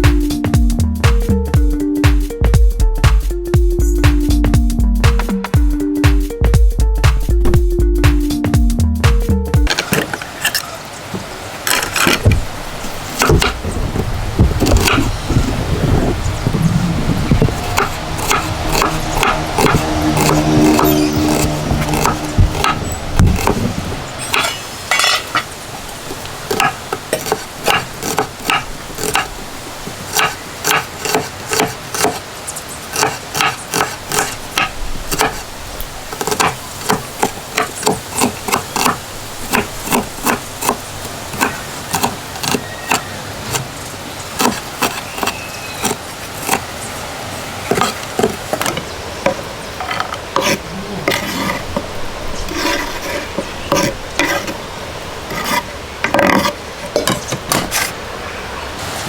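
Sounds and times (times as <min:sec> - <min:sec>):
metal spoon scraping cooking pot: 0:17.5 - 0:25.5, 0:49.8 - 0:51.8, 0:52.4 - 0:54.6, 0:55.3 - 0:58.0.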